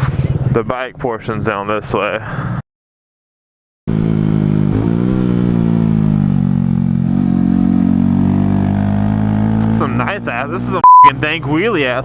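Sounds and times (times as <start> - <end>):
motorcycle engine running: 3.9 - 10.6.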